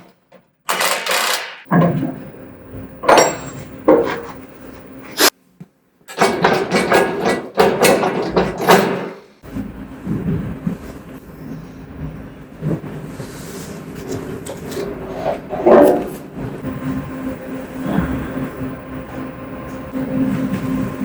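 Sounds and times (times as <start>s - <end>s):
metal parts knocking and clattering: 0.0s - 2.3s, 2.9s - 4.5s, 6.1s - 9.2s.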